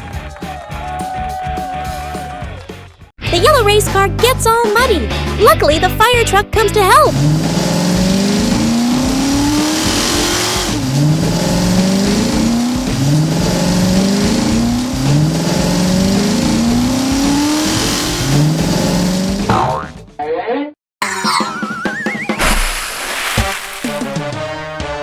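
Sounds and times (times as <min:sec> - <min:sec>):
vehicle engine accelerating: 0:06.9 - 0:19.5.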